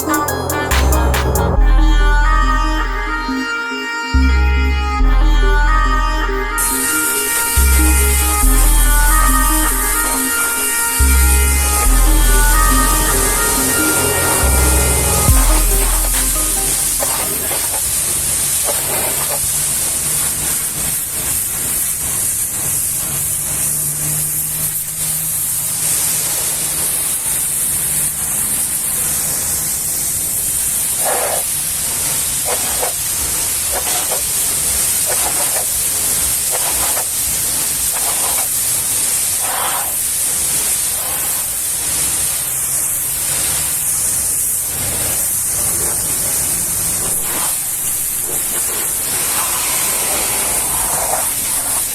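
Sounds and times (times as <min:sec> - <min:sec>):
pressure washer spraying: 0:31.0 - 0:51.9.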